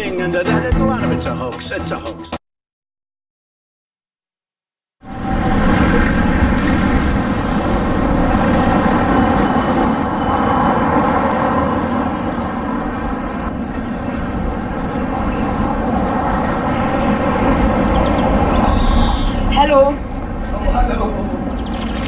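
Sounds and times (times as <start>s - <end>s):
tram rumbling: 5.0s - 22.0s
thin high whine: 8.6s - 11.0s.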